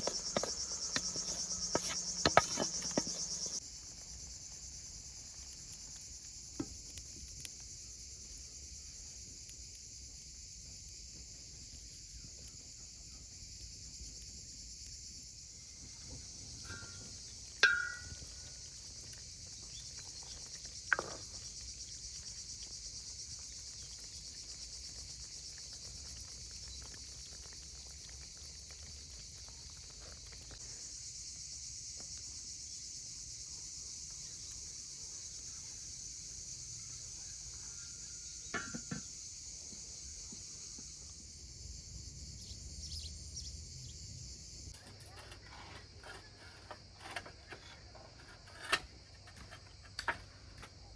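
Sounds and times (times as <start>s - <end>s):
insect chorus chirring: 0.0s - 50.9s.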